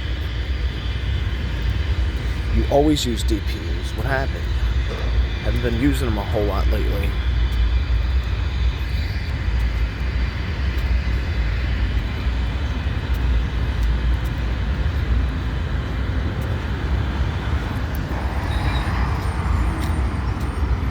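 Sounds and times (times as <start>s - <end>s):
freight train rumbling past: 0.0s - 20.9s
wheels clicking on rails: 0.0s - 20.9s.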